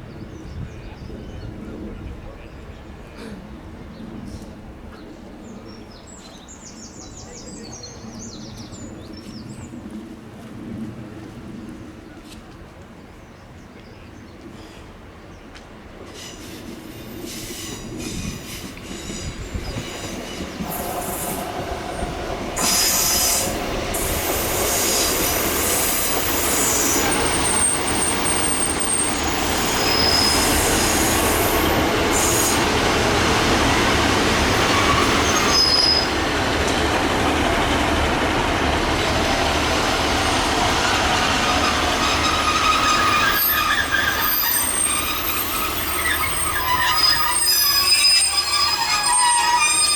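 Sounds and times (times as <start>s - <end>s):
train rumbling past: 14.6s - 49.9s
rhythmic clatter over rail joints: 15.1s - 49.9s
high-pitched wheel squeals: 20.7s - 32.7s, 34.3s - 36.2s, 41.3s - 49.9s.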